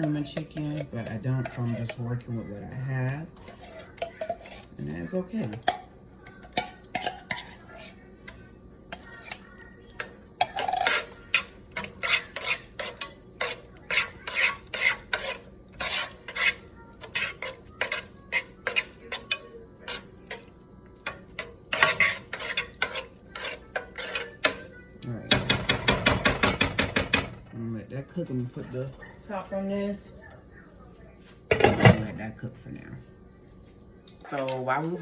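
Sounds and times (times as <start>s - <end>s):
spoon scraping and knocking pot: 0.0s - 8.0s, 8.9s - 24.7s, 25.3s - 27.4s.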